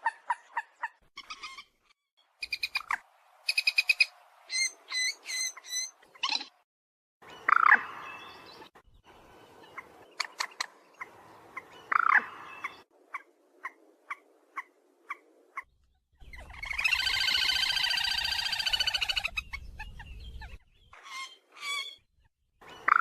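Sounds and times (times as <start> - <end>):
rail bird squawking: 9.8 - 15.7.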